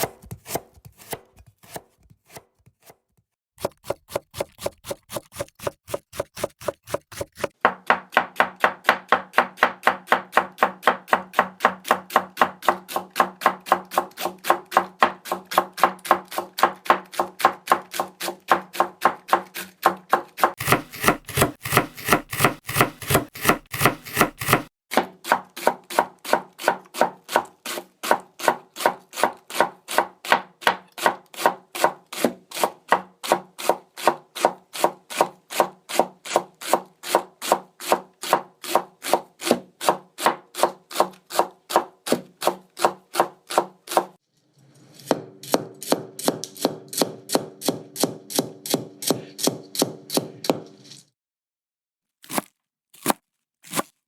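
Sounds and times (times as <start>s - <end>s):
knife chopping on cutting board: 0.0s - 3.0s, 3.6s - 27.5s, 36.3s - 44.1s, 45.0s - 50.9s, 52.2s - 53.9s.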